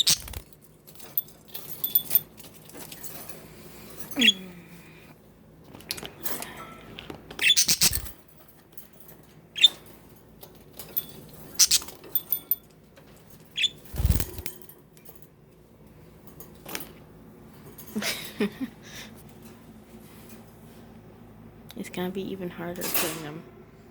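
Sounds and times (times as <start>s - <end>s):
budgies chirping: 0.0s - 0.4s, 7.4s - 8.1s, 11.6s - 11.9s.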